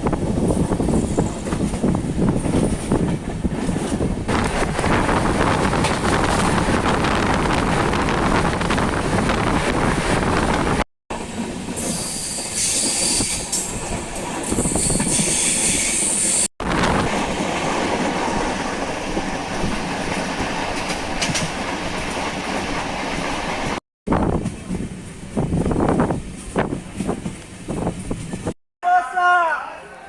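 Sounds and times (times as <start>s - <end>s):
train wheels rumbling: 0.0s - 28.6s
high squeal or hiss: 11.8s - 13.6s, 14.6s - 16.5s.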